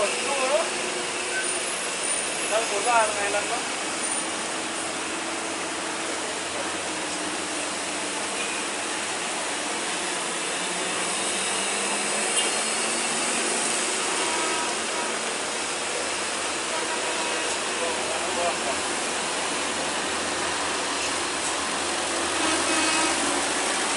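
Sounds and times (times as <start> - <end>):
heavy rain falling: 0.0 - 23.9.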